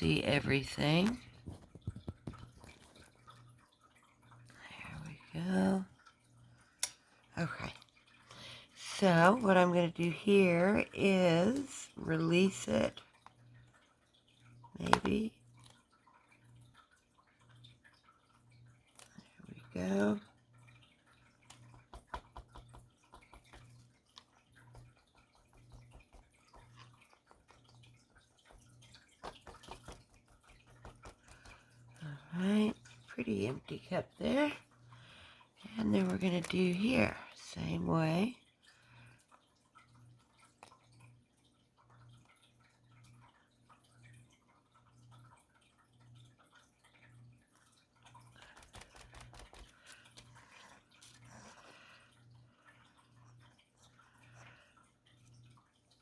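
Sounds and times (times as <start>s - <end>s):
small clicks and crackles: 0.9s - 4.6s, 38.6s - 56.0s
paint dripping onto canvas: 1.0s - 8.1s, 12.9s - 33.1s, 38.4s - 56.0s.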